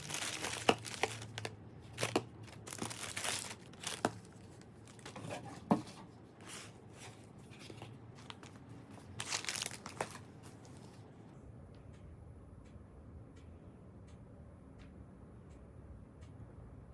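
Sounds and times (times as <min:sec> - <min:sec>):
packaging crinkling and tearing: 0:00.0 - 0:05.4, 0:07.7 - 0:10.9.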